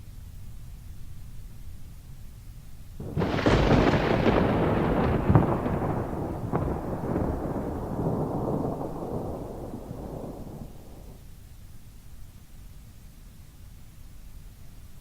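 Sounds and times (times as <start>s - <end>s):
thunderclap: 3.0s - 11.3s.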